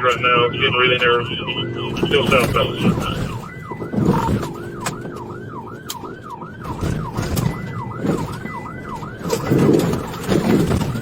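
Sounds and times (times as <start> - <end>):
car rumbling on rough track: 0.0 - 11.0
police siren yelping: 0.0 - 11.0.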